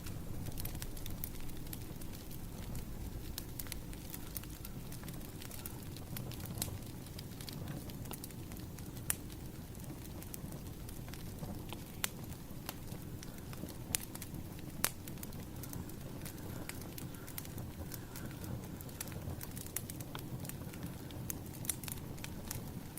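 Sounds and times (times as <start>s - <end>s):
fire rumbling: 0.0s - 22.9s
firewood snaps and pops: 11.1s - 22.9s.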